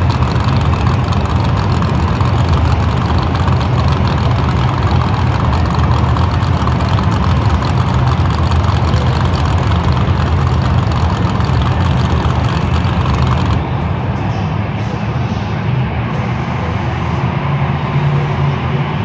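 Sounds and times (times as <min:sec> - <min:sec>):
monster truck engines rumbling: 0:00.0 - 0:13.8.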